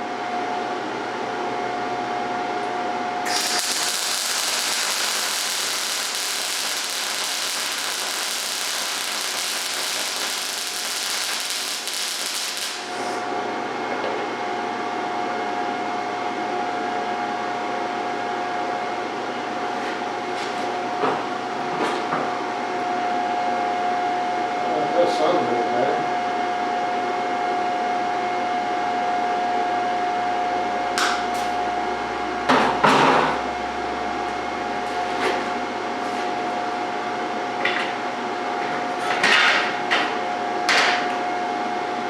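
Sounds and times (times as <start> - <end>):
steady hum: 2.3 - 14.8, 28.8 - 38.6
welding arc sizzling and crackling: 3.2 - 13.4.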